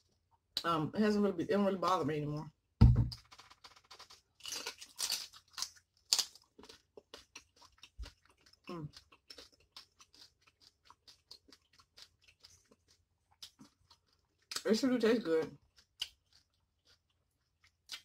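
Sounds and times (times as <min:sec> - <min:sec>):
wet chewing with clicks: 0:03.1 - 0:14.7, 0:15.4 - 0:18.0
crunching bites: 0:03.2 - 0:14.6.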